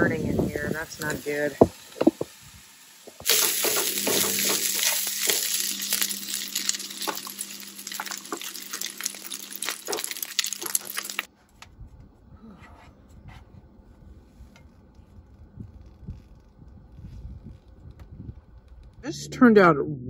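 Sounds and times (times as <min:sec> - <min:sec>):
food sizzling in a frying pan: 0:00.0 - 0:11.3
spatula stirring and scraping: 0:03.1 - 0:11.3.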